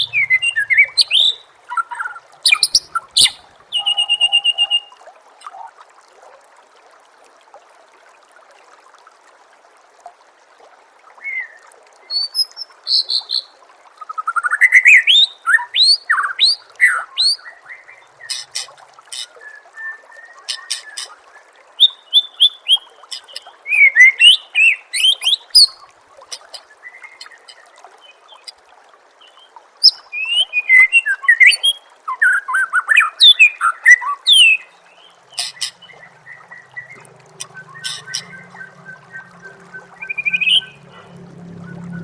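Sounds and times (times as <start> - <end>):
songbird singing whistles and clicks: 0.0 - 4.9, 36.3 - 40.8
faint trickle of water: 0.0 - 42.0.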